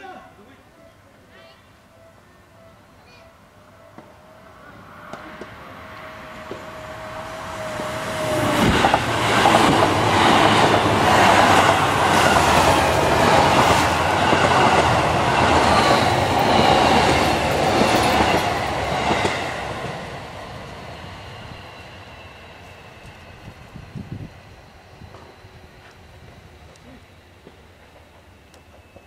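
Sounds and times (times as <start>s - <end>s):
train passing at speed: 1.7s - 29.0s
wheels clacking over rail joints: 8.2s - 19.5s.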